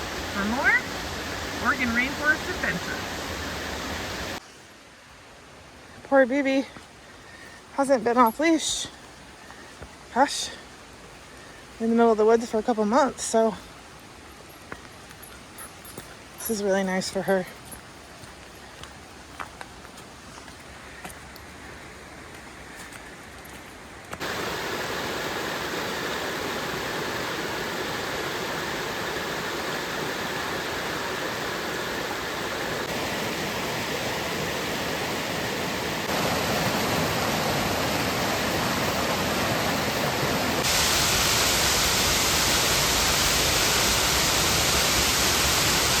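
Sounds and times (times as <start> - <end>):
waterfall rushing: 0.0 - 4.4, 24.2 - 46.0.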